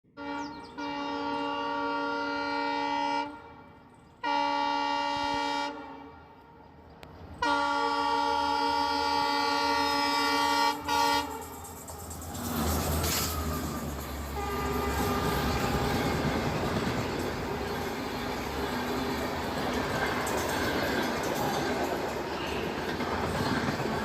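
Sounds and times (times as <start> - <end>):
train horn blasts: 0.1 - 6.8, 7.4 - 11.6, 13.0 - 17.8
train rumbling: 0.2 - 24.0.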